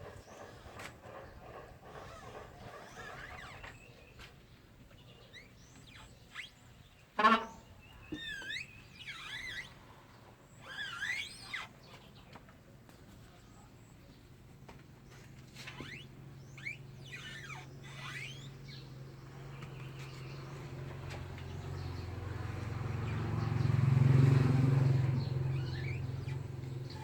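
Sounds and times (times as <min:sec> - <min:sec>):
short high squeaks: 0:01.9 - 0:04.3, 0:05.2 - 0:12.1, 0:15.5 - 0:19.0, 0:25.0 - 0:27.0.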